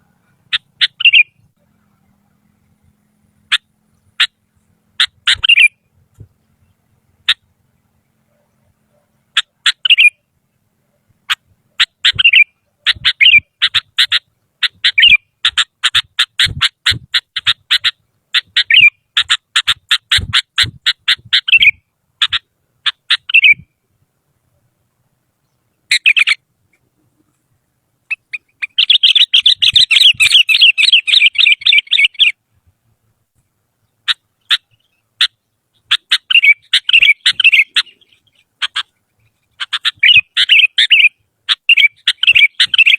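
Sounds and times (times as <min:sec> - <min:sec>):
bird chirping and chattering: 0:00.4 - 0:01.5, 0:05.0 - 0:10.2, 0:11.2 - 0:23.8, 0:25.4 - 0:26.8, 0:28.1 - 0:32.4, 0:33.8 - 0:42.9.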